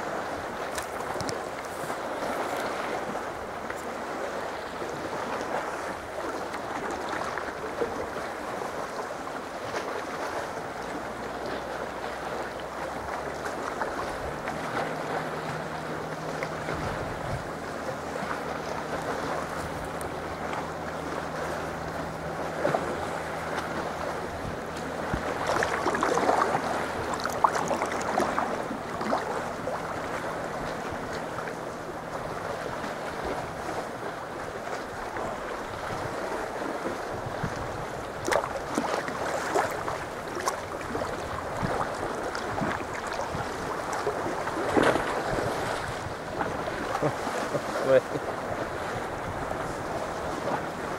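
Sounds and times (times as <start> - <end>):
water splashing against kayak: 0.0 - 50.9
wind buffeting microphone: 13.8 - 50.9.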